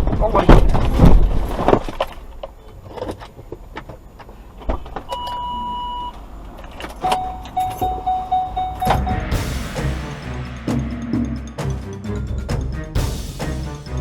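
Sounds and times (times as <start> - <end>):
car warning beeps: 5.1 - 6.2, 7.0 - 9.5.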